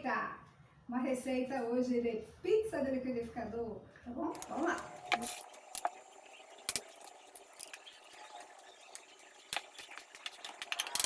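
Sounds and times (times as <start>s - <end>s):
kitchen utensils clicking: 4.4s - 5.9s.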